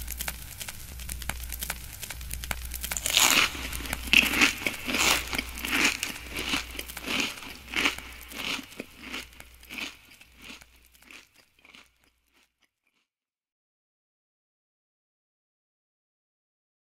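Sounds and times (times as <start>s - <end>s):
crunchy chewing of crisp food: 0.0s - 13.1s.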